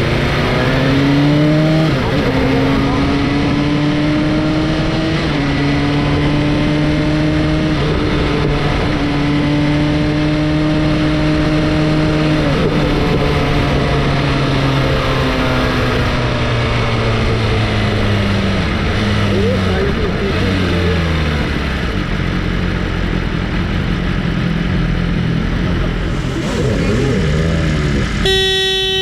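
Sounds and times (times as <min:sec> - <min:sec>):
motorcycle engine changing gears: 0:25.4 - 0:29.0
heavy wind rush: 0:25.7 - 0:28.3.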